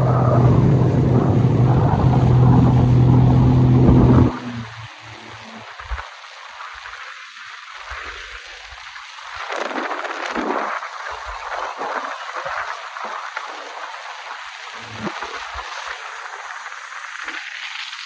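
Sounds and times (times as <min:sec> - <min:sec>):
wind buffeting microphone: 0:00.0 - 0:05.1
water splashing around jet ski: 0:00.0 - 0:18.0.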